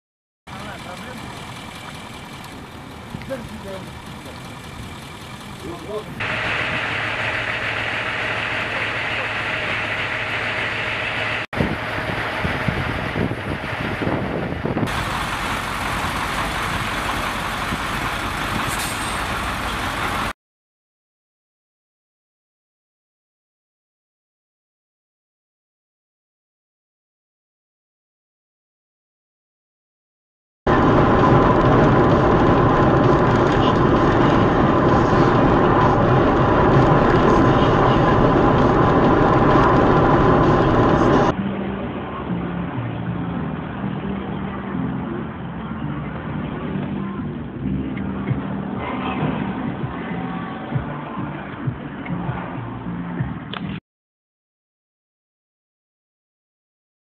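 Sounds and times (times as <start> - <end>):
vehicle road and engine noise: 0.5 - 20.4, 30.7 - 53.8
thin steady whine: 3.2 - 13.0.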